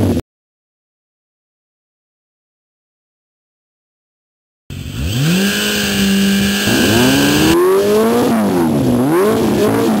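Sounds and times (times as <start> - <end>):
motorcycle engine revving: 4.7 - 10.0.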